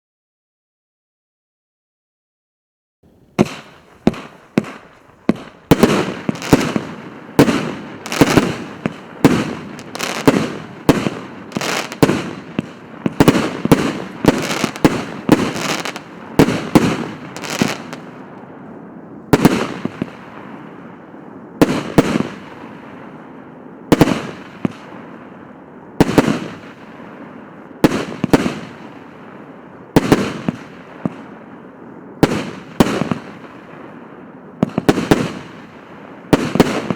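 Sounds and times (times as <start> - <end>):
firework cake bangs and crackle: 3.1 - 36.9.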